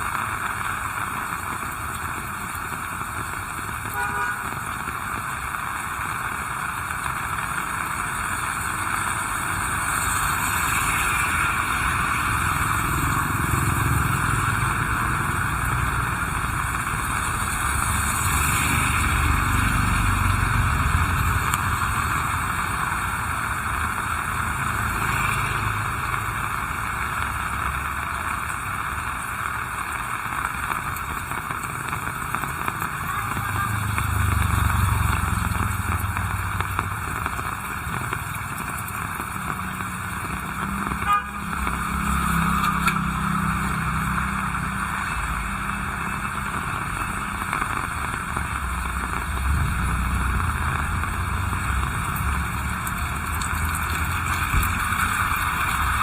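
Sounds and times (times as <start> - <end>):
heavy rain hissing: 0.0 - 56.0
vehicles passing by: 0.0 - 56.0.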